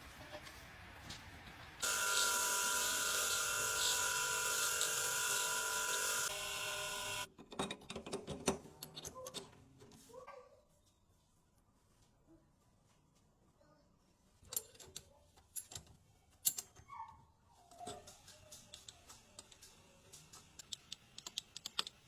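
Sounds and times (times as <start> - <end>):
power tool whining: 1.8 - 7.3
parts clicking and knocking: 1.8 - 9.6, 14.4 - 16.9, 17.7 - 22.0.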